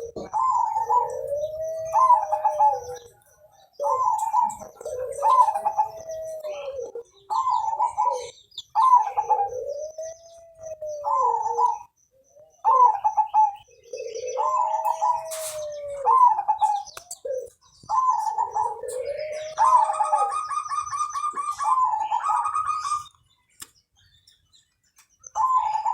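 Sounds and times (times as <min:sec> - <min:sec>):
dove cooing: 0:00.0 - 0:23.2, 0:25.2 - 0:25.9.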